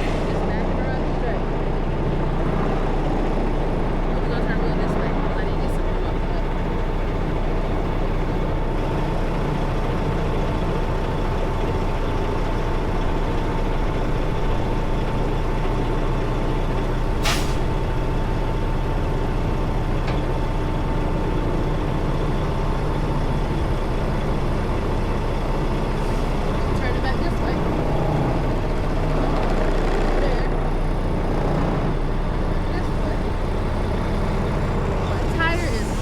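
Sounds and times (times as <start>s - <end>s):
diesel truck engine running: 0.0s - 36.0s
air hiss releasing: 17.2s - 17.7s.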